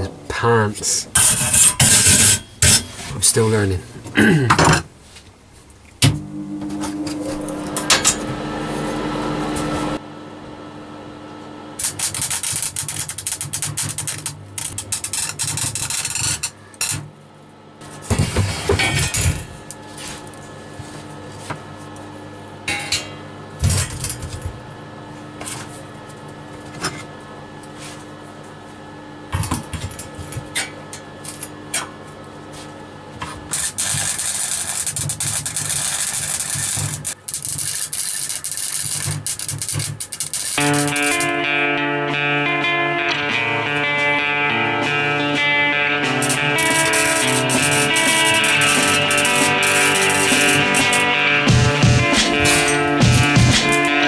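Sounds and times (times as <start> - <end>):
electric arc welding crackle: 11.8 - 17.0, 33.5 - 41.4, 44.8 - 54.0.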